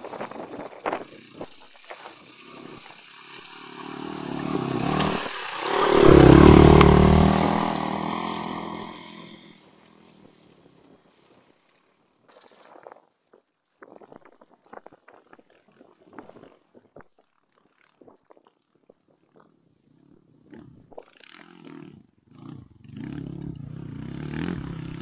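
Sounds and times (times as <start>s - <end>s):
motorcycle engine passing by: 0.1s - 11.0s, 20.4s - 25.0s.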